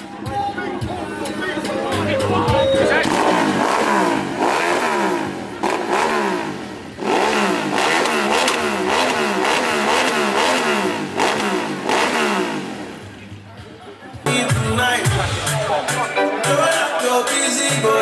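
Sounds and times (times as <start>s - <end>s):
motorcycle engine revving: 0.9s - 13.6s.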